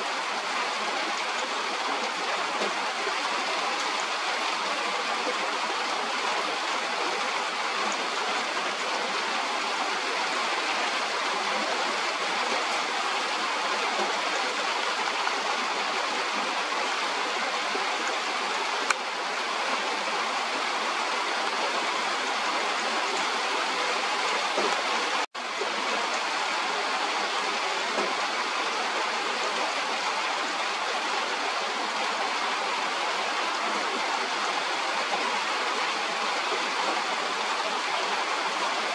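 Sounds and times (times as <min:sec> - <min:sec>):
rain falling: 0:00.0 - 0:38.9
faint click: 0:18.8 - 0:19.0.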